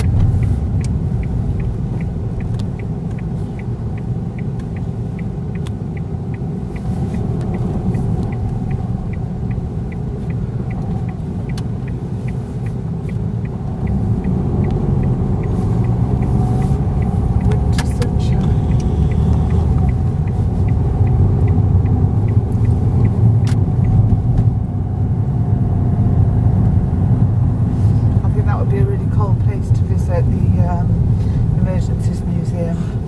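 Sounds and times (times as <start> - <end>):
light even ticking: 0.0 - 24.7
car road rumble: 0.0 - 33.0.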